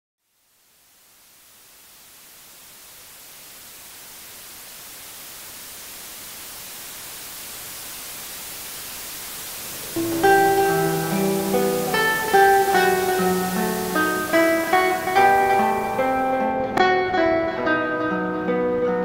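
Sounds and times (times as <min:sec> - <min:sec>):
steady hiss: 0:00.2 - 0:17.6
plucked guitar music: 0:09.9 - 0:19.0.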